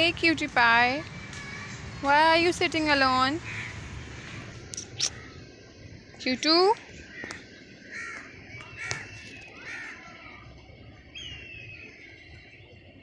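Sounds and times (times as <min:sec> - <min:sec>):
birds cawing: 0:01.1 - 0:05.8, 0:07.0 - 0:12.0.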